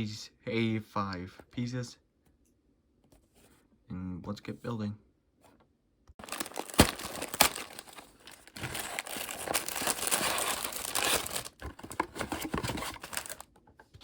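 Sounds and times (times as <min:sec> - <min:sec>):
packaging crinkling and tearing: 0:06.2 - 0:13.5.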